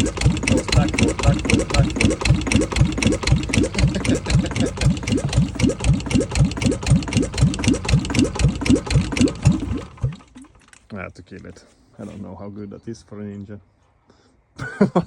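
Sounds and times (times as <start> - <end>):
diesel engine running lumpily: 0.0 - 10.6.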